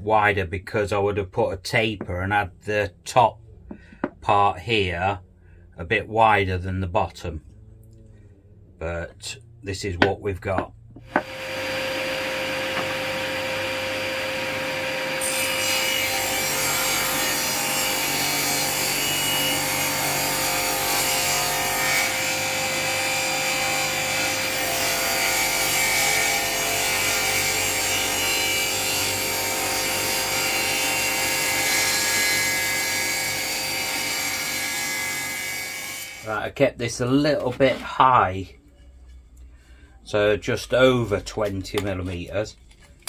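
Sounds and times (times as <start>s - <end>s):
power tool cutting wood: 11.0s - 36.3s.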